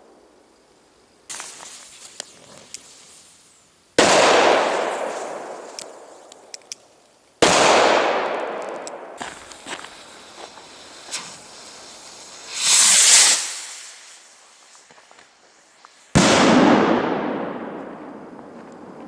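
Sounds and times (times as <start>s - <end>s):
firecrackers banging: 4.0s - 6.3s, 7.4s - 19.0s.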